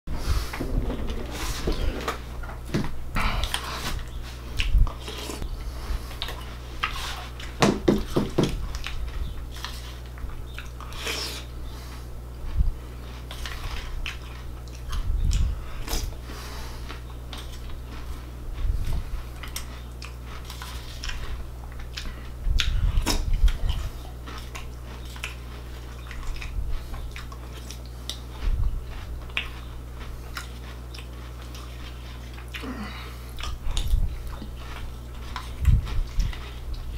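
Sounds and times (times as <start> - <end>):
low hum: 0.1 - 36.9
plastic spoon scraping bowl: 0.2 - 2.4
person chewing crunchy cereal: 0.2 - 36.9.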